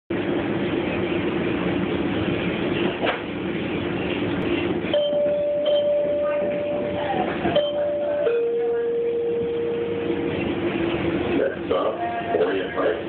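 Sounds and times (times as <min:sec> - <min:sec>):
train carriage rumble and hum: 0:00.1 - 0:13.0
steady high tone: 0:04.9 - 0:10.7.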